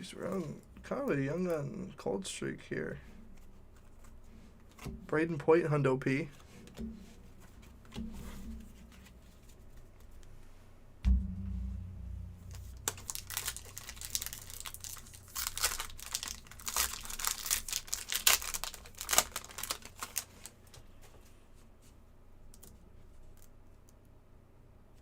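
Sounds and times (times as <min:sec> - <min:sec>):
dull bump: 0:11.0 - 0:13.6
foil wrapper tearing and crinkling: 0:12.9 - 0:20.6.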